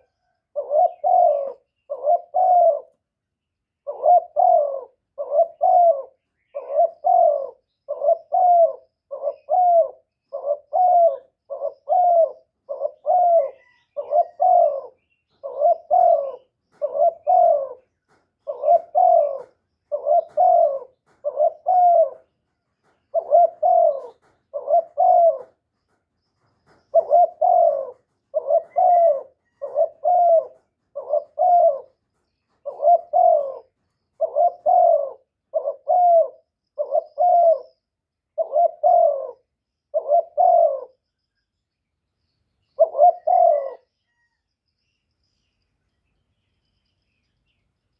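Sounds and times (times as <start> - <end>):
dove cooing: 0.0 - 3.1, 3.8 - 41.1, 42.6 - 44.4.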